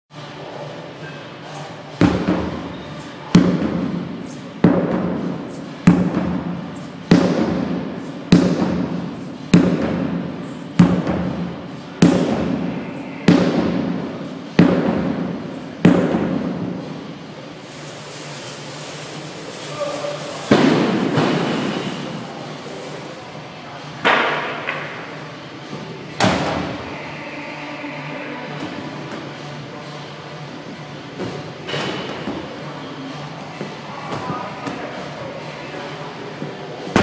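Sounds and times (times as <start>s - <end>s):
sledgehammer striking tire: 7.1s - 10.1s, 14.6s - 16.6s.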